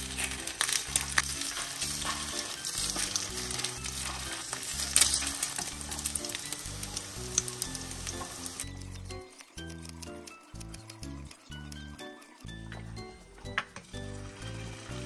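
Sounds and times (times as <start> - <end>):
sausage sizzling in oil: 0.0 - 8.7, 13.8 - 15.0.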